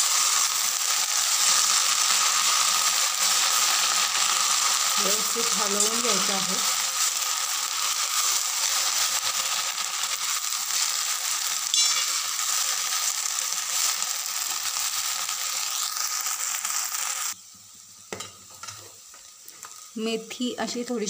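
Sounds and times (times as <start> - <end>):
leaves sizzling in hot oil: 0.0 - 21.0
spatula clinking on pan: 11.7 - 12.3.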